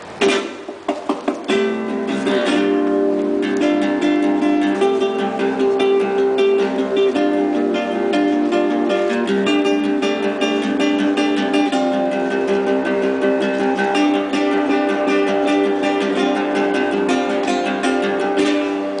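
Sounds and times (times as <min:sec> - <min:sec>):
fast acoustic guitar: 0:00.2 - 0:19.0.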